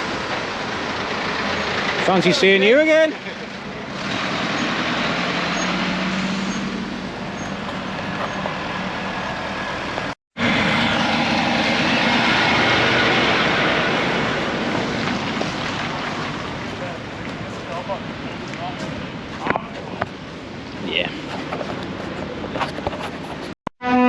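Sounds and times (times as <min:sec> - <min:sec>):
heavy lorry engine running: 0:00.0 - 0:19.1
road and traffic noise: 0:00.0 - 0:24.0.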